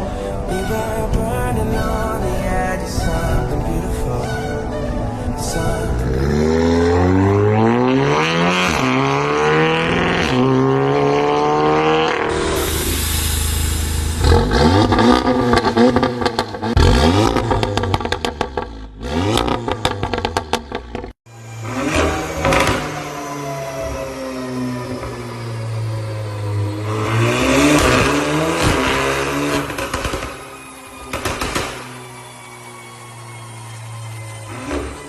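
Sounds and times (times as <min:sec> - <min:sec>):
car engine revving: 0:04.2 - 0:35.0
exhaust crackles and pops: 0:14.2 - 0:21.2, 0:27.7 - 0:32.1.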